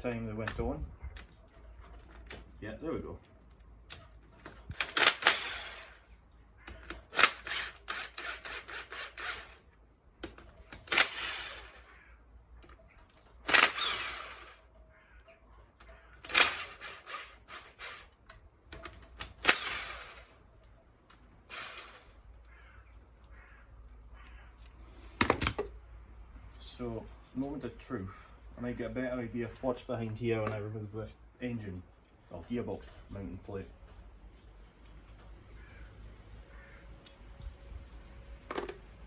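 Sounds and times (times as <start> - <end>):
metal tool clicking on bolts: 3.9 - 6.0, 6.6 - 9.5, 12.6 - 14.7, 15.8 - 20.4.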